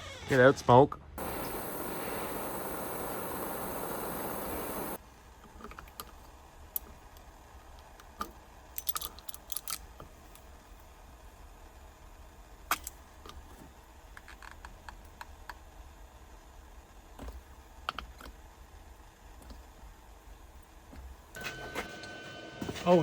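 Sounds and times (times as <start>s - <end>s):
steady rushing hiss: 1.2s - 5.0s.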